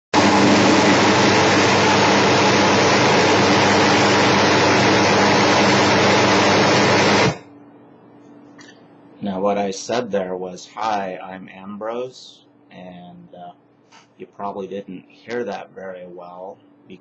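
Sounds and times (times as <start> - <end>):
loud steady white noise: 0.2 - 7.4
man speaking: 9.2 - 13.6, 14.2 - 17.0.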